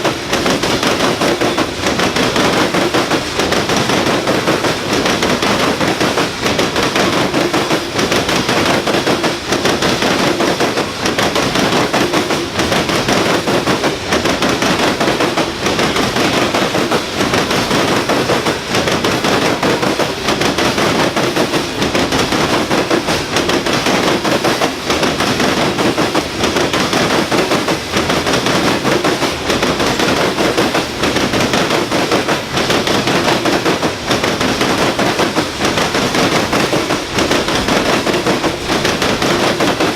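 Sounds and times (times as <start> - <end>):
freight train wheels clattering on rails: 0.0 - 39.9.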